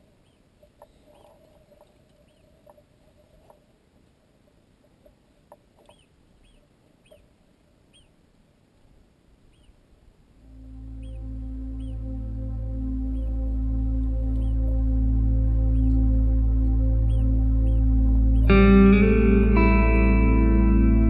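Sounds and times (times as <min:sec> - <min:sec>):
faint bird chirps: 0:00.0 - 0:03.7, 0:04.9 - 0:08.3, 0:09.4 - 0:19.2
faint clicks: 0:00.0 - 0:07.3.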